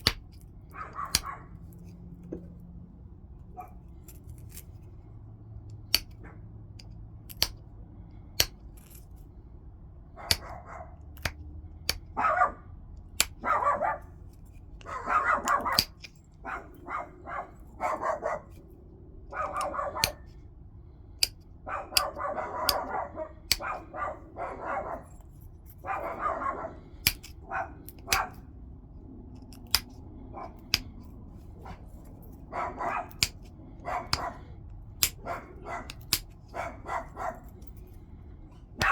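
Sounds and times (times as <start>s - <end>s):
stone flakes snapping off: 0.0s - 0.4s, 15.5s - 16.1s.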